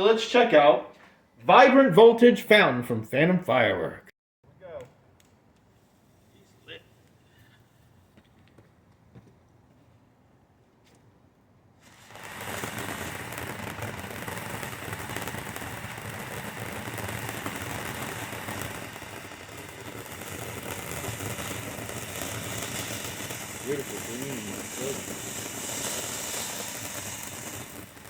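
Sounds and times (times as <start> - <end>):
fountain firework hissing and crackling: 5.6 - 8.3, 11.8 - 28.0.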